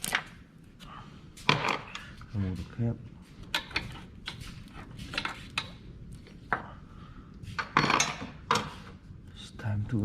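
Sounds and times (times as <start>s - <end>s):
metal tools clinking and knocking: 1.4s - 2.1s, 7.6s - 8.8s.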